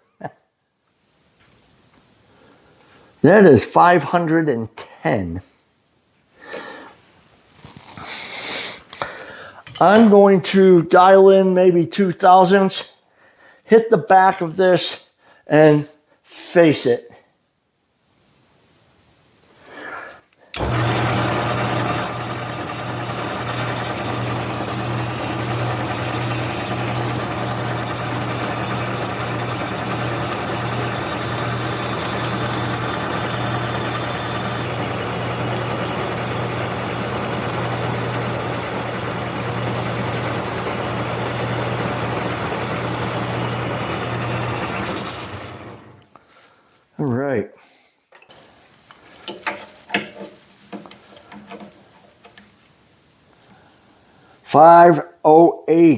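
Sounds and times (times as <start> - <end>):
metal lathe motor humming: 20.6 - 46.0.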